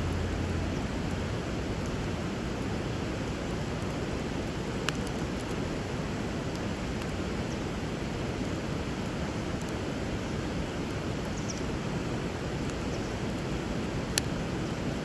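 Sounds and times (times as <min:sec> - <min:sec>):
river water running: 0:00.0 - 0:15.0
wood fire crackling: 0:00.0 - 0:15.0.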